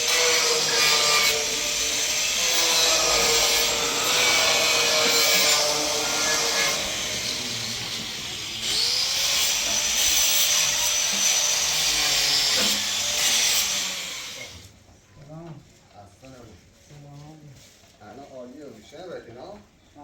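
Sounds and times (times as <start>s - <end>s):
electric power tool cutting: 0.0s - 14.6s.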